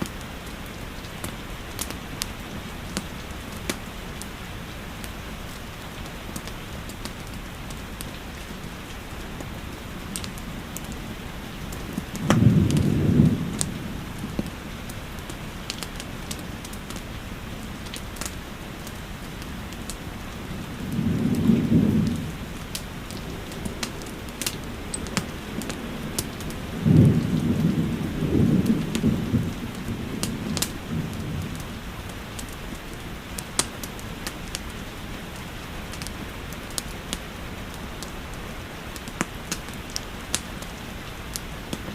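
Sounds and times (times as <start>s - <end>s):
steady rainfall: 0.0s - 41.9s
wood fire crackling: 0.0s - 41.9s
thunder rumbling: 8.6s - 33.5s.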